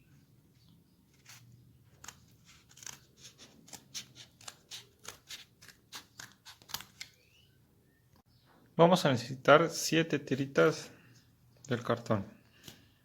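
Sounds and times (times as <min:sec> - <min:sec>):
scissors cutting cardboard: 0:01.1 - 0:07.1.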